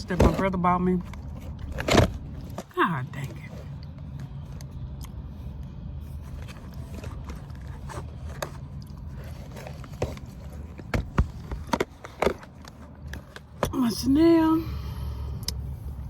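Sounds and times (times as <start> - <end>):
low rumble inside car: 0.0 - 16.0
objects knocking and clicking: 6.8 - 13.8.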